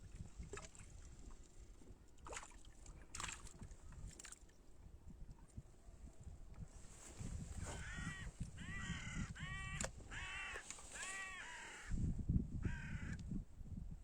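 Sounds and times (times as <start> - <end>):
crow cawing: 7.7 - 11.9, 12.6 - 13.2.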